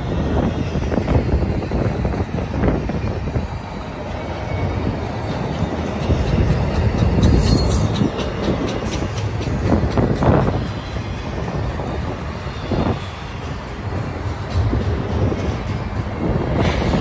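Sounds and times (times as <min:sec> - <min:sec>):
steel wheels rumbling on rail: 0:00.0 - 0:17.0
wheel squeal: 0:05.9 - 0:09.0.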